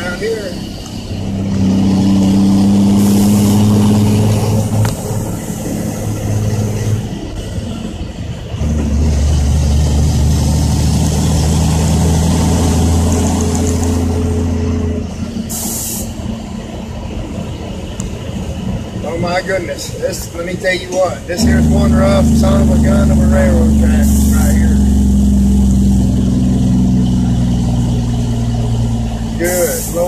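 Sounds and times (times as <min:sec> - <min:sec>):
diesel truck engine droning: 0:00.0 - 0:30.0
air hiss: 0:15.5 - 0:16.2.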